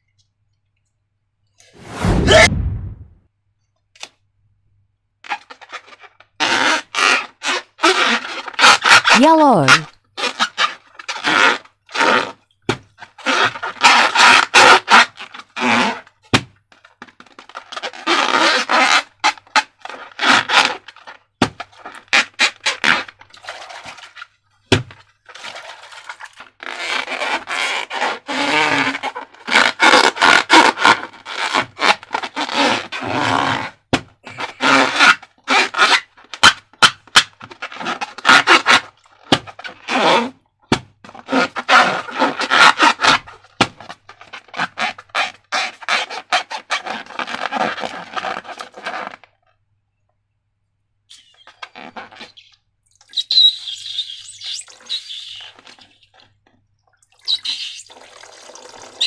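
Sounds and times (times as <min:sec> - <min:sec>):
scraping rubbing and crackling: 0:16.8 - 0:24.4, 0:41.1 - 0:49.2, 0:51.1 - 0:52.5.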